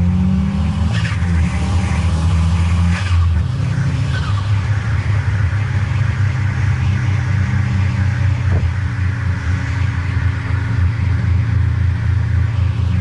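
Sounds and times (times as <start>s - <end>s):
car engine drone inside cabin: 0.0s - 13.0s
road noise: 0.0s - 13.0s.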